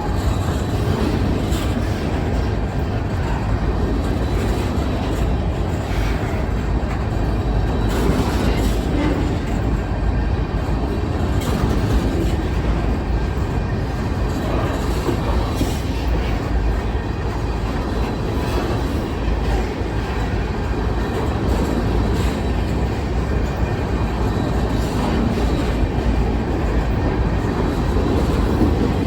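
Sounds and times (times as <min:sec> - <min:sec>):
train wheels rumbling on rail: 0:00.0 - 0:29.0
wheels clacking over rail joints: 0:00.0 - 0:29.0.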